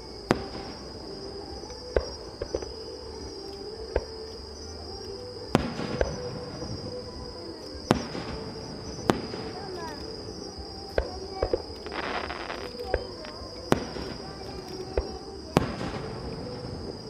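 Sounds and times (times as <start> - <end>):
insects trilling: 0.0 - 17.0
fireworks bangs with echo: 0.2 - 2.8, 5.5 - 7.0, 7.7 - 17.0.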